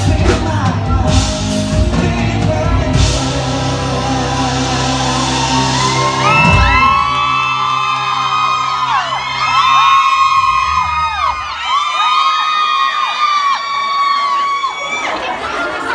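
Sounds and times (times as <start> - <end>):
live pop-rock band and singer: 0.0 - 9.7
audience screaming and whooping: 2.9 - 15.9.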